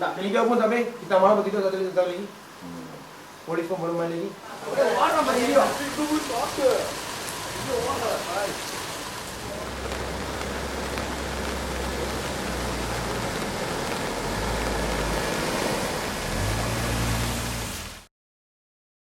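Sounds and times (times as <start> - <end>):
heavy rain hissing: 0.0 - 18.1
running water: 0.0 - 18.1.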